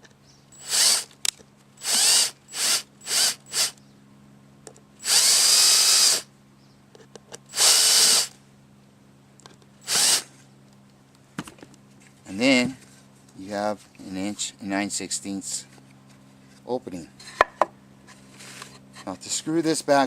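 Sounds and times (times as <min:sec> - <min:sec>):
power drill driving screws into wood: 0:00.6 - 0:01.2, 0:01.8 - 0:03.8, 0:05.0 - 0:06.3, 0:07.5 - 0:08.4, 0:09.8 - 0:10.3.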